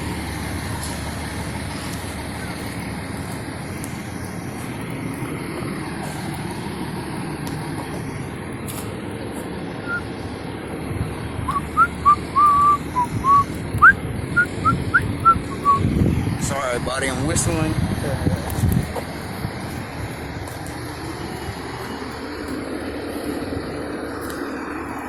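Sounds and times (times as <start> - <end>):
person whistling a tune: 9.8 - 10.1, 11.5 - 15.8.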